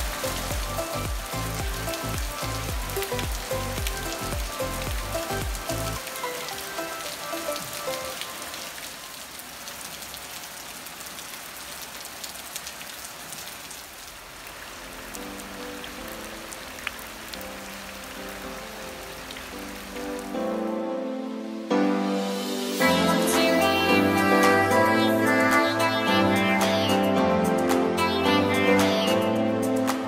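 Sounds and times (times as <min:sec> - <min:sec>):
music with bass pulse: 0:00.0 - 0:06.0
rain pattering on foliage: 0:00.0 - 0:20.4.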